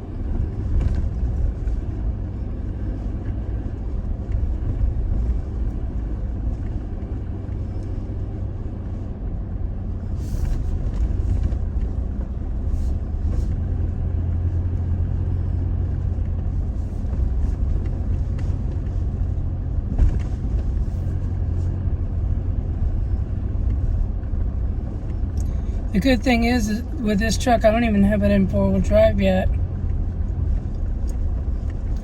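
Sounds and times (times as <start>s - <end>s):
engine and tyre rumble: 0.0s - 32.0s.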